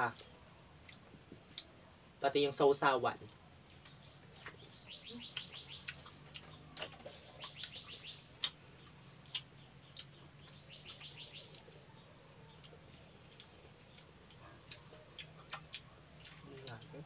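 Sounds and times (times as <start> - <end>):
eating clicks and smacks: 0.1 - 1.8, 3.2 - 10.2, 12.5 - 17.0
bird trilling high chirps: 4.1 - 6.1, 7.2 - 8.5, 9.9 - 11.6.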